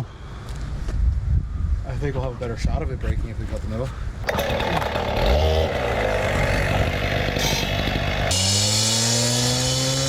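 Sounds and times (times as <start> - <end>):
concrete saw cutting concrete: 4.2 - 10.0.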